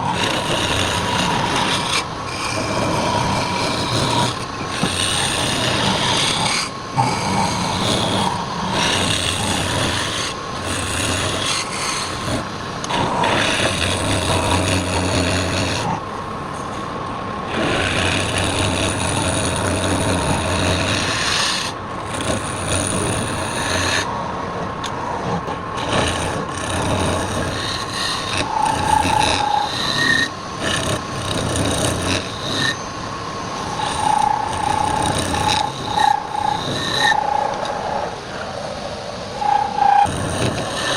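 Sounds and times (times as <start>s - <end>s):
tool scraping spinning wood: 0.0s - 16.0s, 25.4s - 38.0s
lathe motor whine: 25.8s - 40.9s.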